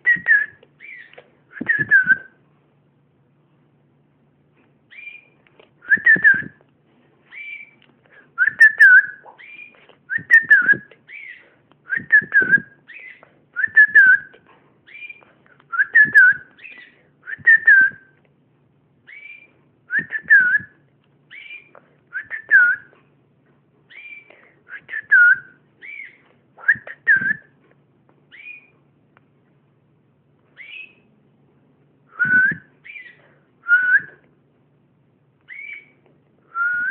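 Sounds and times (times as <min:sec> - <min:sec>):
pet bird whistling: 0:00.0 - 0:02.3, 0:04.9 - 0:06.6, 0:07.3 - 0:07.8, 0:08.4 - 0:14.3, 0:14.9 - 0:18.1, 0:19.1 - 0:20.7, 0:21.3 - 0:22.9, 0:23.9 - 0:27.5, 0:28.3 - 0:28.7, 0:30.6 - 0:31.0, 0:32.1 - 0:34.2, 0:35.5 - 0:36.0.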